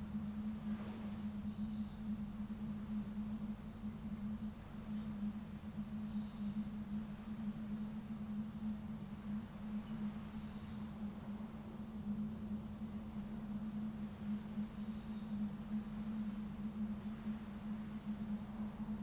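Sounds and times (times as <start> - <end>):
steady low hum: 0.0 - 19.0
small birds chirping: 9.4 - 18.2.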